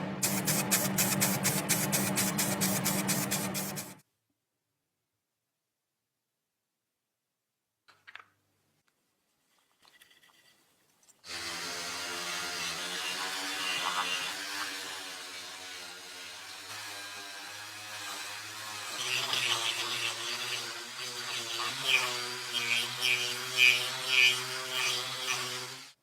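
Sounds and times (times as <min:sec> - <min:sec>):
rough grinding bursts: 0:00.2 - 0:04.0, 0:11.3 - 0:26.0
small power tool running: 0:00.2 - 0:04.0, 0:11.3 - 0:26.0.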